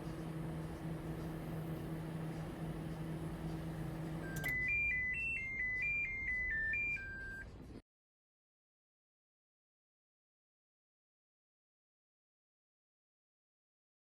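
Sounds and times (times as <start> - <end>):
microwave humming: 0.0 - 7.4
electronic beeped melody: 4.2 - 7.5.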